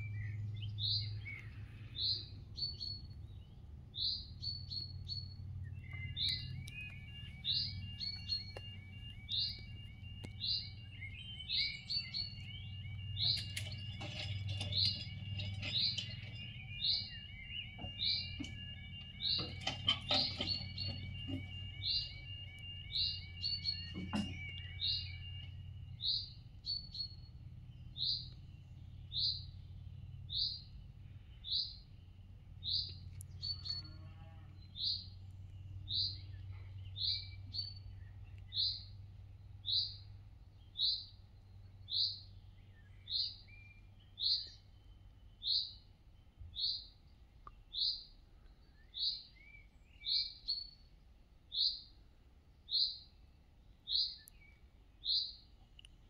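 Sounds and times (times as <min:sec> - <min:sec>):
bird chirping: 0:00.0 - 0:52.0, 0:52.6 - 0:56.0
level crossing alarm: 0:06.1 - 0:27.4.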